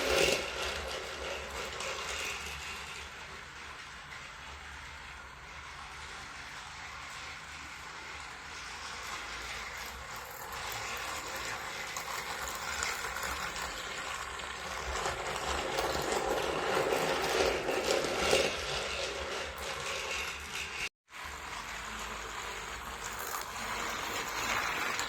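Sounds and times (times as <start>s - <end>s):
toy train motor whirring: 0.0s - 25.0s.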